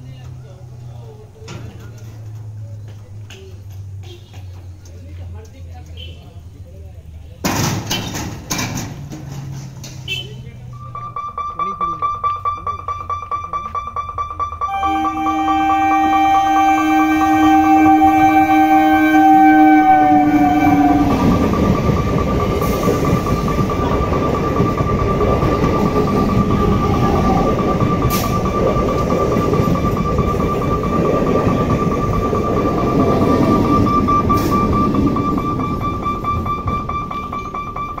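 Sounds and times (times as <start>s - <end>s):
train coaches rolling past: 0.0s - 38.0s
high whine: 10.8s - 38.0s
train horn: 14.7s - 21.6s.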